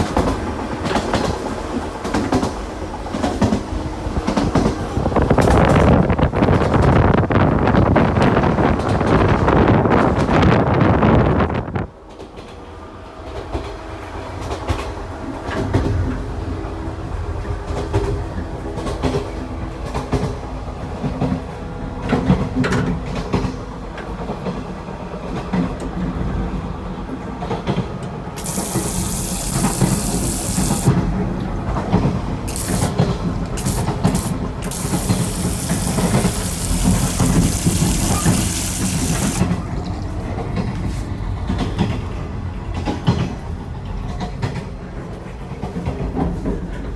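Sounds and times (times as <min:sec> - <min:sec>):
electric train rumble: 0:00.0 - 0:46.9
toilet flushing: 0:28.4 - 0:40.2.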